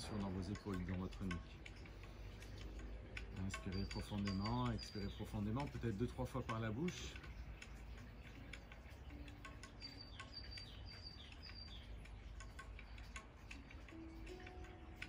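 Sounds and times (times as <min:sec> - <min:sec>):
soft clicks: 0:00.0 - 0:15.0
bird chirping: 0:03.4 - 0:14.4.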